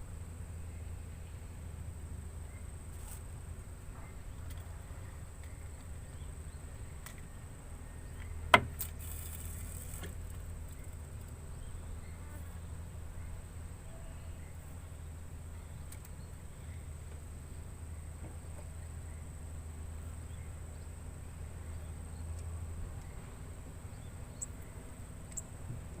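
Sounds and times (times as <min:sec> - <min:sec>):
insects droning: 0:00.0 - 0:26.0
low outdoor rumble: 0:00.0 - 0:26.0
brief rustle: 0:02.9 - 0:03.3, 0:08.8 - 0:11.0.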